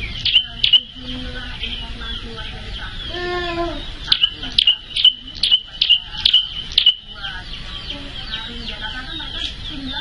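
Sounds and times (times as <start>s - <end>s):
bird calling sharp high chips: 0.0s - 1.0s, 4.0s - 7.2s.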